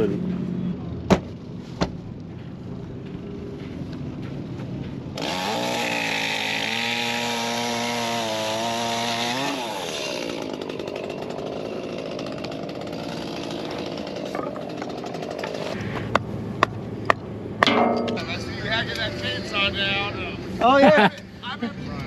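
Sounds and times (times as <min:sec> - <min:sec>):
chainsaw revving and idling: 0:05.2 - 0:15.8.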